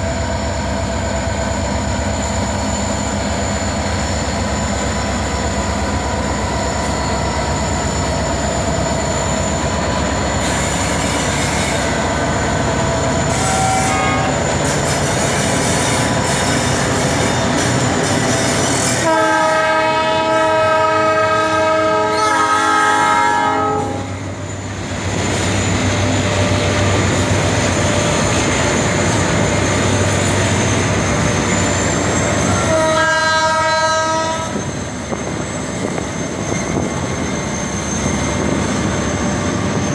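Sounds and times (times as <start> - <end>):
multi-note air horn blasts: 13.3 - 14.3, 19.0 - 24.1, 32.7 - 34.5.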